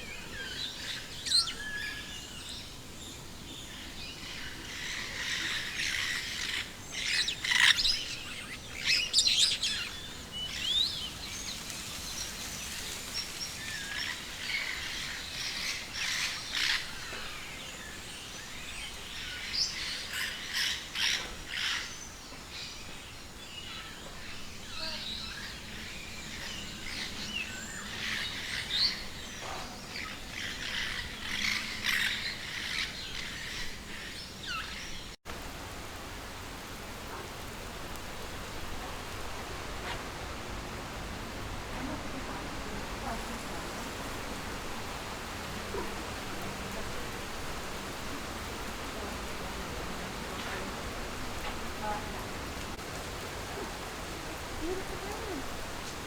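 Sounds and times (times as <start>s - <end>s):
birds chirping and trilling: 0.0s - 35.2s.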